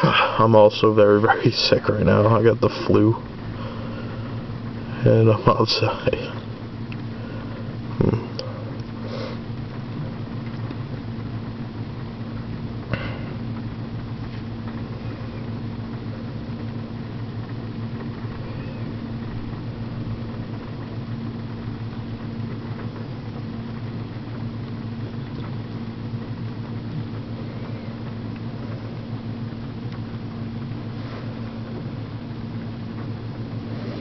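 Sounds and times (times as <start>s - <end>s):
heavy rain hiss: 0.0s - 10.4s
car interior mechanical hum: 0.0s - 34.0s.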